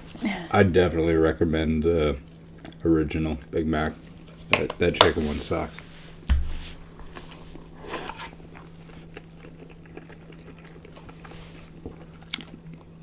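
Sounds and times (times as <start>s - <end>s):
soft chewing: 2.2s - 4.5s, 5.2s - 13.0s
biting into burger: 7.6s - 13.0s.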